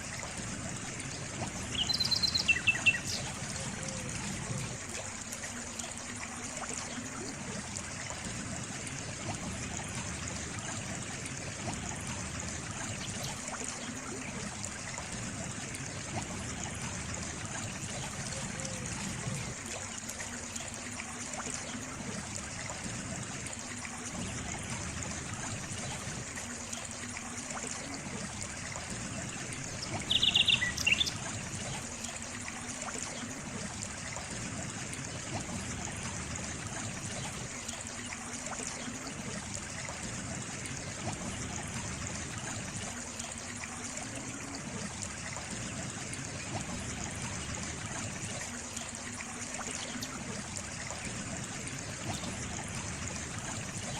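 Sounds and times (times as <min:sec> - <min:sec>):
stream trickling: 0:00.0 - 0:53.9
bird chirping: 0:01.7 - 0:03.2, 0:30.0 - 0:31.2.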